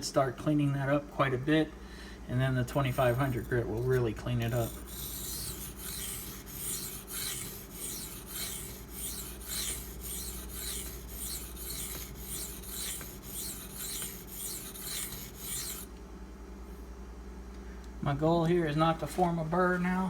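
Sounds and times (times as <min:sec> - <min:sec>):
knife rasping on sharpening stone: 0:02.8 - 0:15.9.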